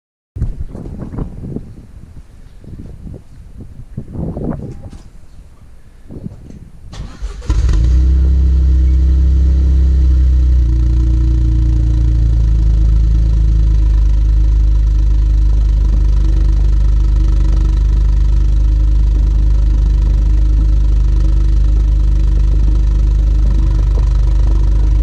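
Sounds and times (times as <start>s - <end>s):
car engine starting: 6.9s - 25.0s
car engine idling: 7.0s - 25.0s.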